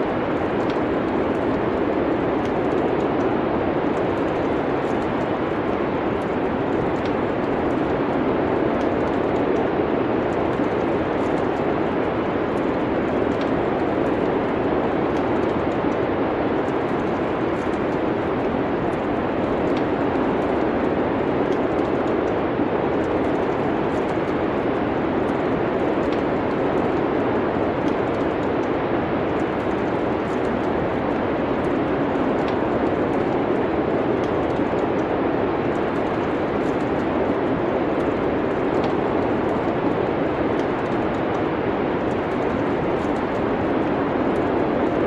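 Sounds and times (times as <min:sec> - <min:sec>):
snowstorm wind noise: 0:00.0 - 0:45.0
wood fire crackling: 0:00.0 - 0:45.0.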